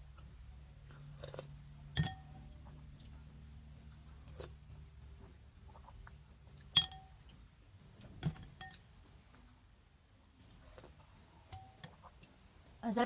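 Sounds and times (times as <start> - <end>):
spoon clinking against bowl: 2.0 - 2.4, 6.7 - 7.2, 8.3 - 8.8, 11.5 - 12.0.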